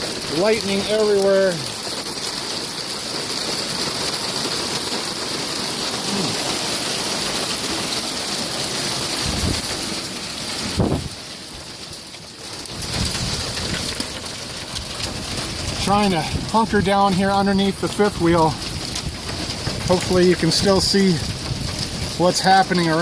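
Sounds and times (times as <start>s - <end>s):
wind-driven rain: 0.0s - 23.0s
wind buffeting microphone: 9.0s - 9.9s, 10.6s - 11.2s, 12.7s - 14.0s, 14.6s - 22.6s.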